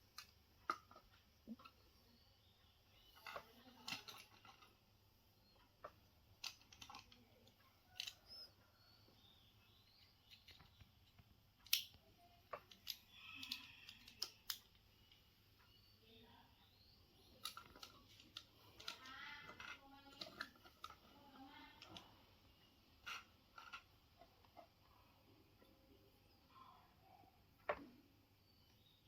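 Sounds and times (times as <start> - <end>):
toy parts clicking and tapping: 0.0 - 1.9, 2.7 - 8.5, 9.1 - 15.2, 17.2 - 22.2, 22.9 - 24.8.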